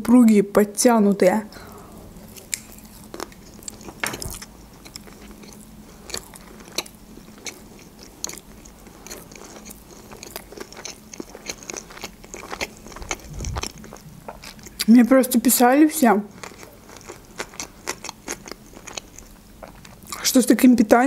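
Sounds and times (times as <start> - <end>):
wet chewing clicks and smacks: 2.3 - 14.9, 16.3 - 20.2.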